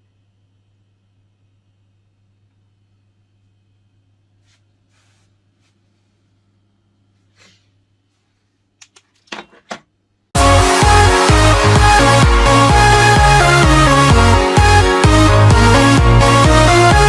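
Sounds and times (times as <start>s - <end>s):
faint low hum: 0.0s - 9.3s
electronic dance music: 10.4s - 17.0s.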